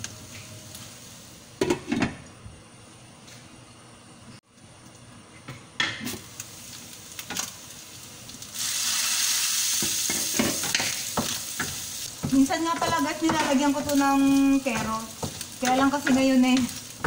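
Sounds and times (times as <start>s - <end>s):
meat sizzling in a pan: 6.1s - 17.0s.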